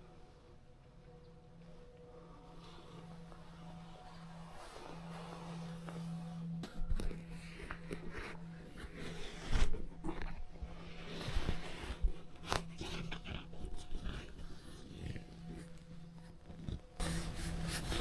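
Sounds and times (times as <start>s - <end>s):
steady low hum: 17.0s - 18.0s.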